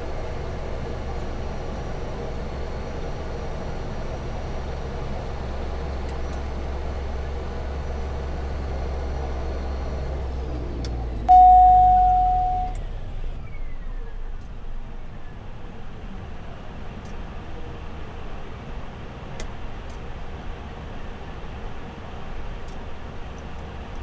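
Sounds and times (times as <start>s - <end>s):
single beep tone: 11.3s - 12.8s.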